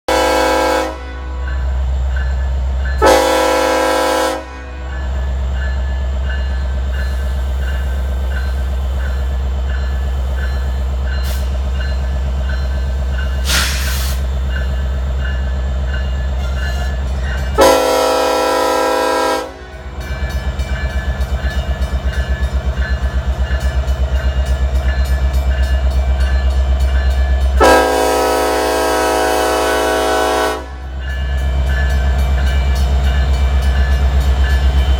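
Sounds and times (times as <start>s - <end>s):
locomotive air horn blasts: 0.1s - 1.5s, 3.0s - 4.9s, 17.6s - 19.8s, 27.6s - 30.9s.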